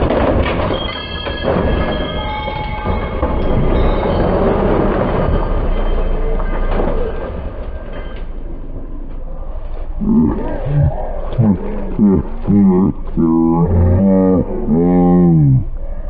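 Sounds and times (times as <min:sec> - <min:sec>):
raised voices: 0:09.3 - 0:16.0.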